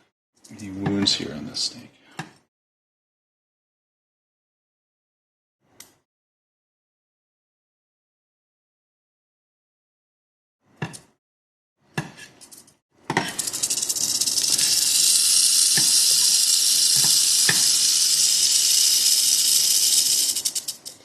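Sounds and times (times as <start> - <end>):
rattlesnake rattling: 13.3 - 21.0.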